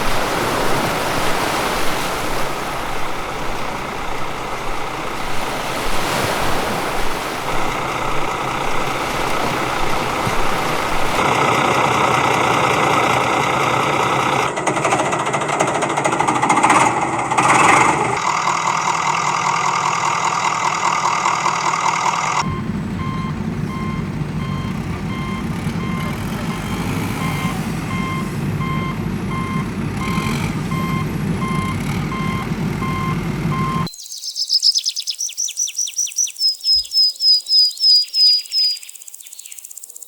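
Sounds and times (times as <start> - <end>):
low engine rumble: 0.0 - 33.9
reversing alarm beeping: 22.4 - 33.9.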